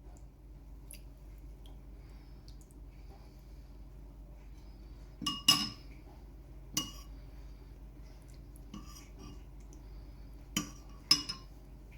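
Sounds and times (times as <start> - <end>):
cutlery clinking on a dish: 5.3 - 5.8, 10.6 - 11.5.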